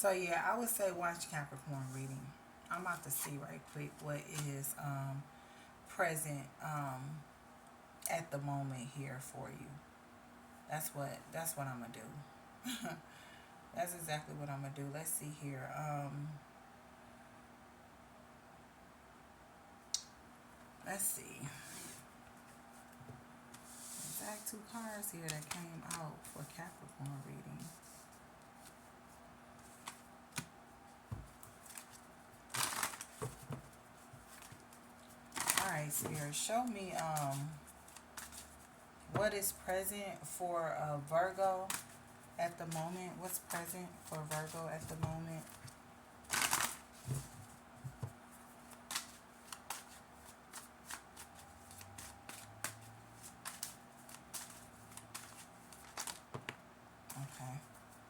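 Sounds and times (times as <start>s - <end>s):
cards shuffling: 29.6s - 30.5s, 31.1s - 38.7s, 43.5s - 56.6s
cards riffling: 48.6s - 56.4s
cards flicking and tapping: 48.8s - 56.6s.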